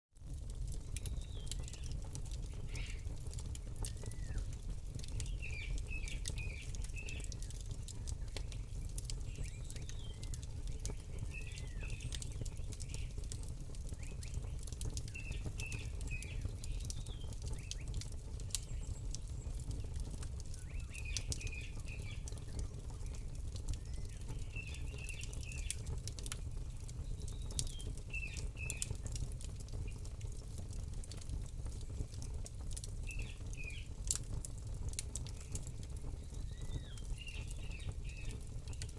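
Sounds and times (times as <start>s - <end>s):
campfire crackling and popping: 0.2s - 38.9s
bird chirping: 36.2s - 38.4s.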